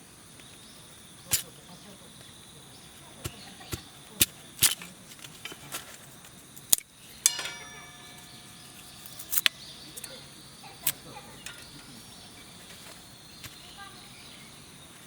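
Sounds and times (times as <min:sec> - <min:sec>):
knocks and clicks of handled gear: 0:03.2 - 0:10.2
metal plates clanking: 0:07.1 - 0:10.2, 0:10.8 - 0:12.3.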